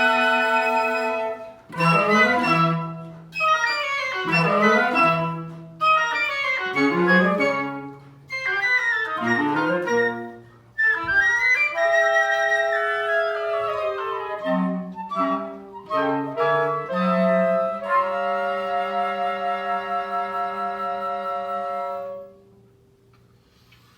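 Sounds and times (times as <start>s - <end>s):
woodwinds and cello chamber piece: 0.0s - 22.6s.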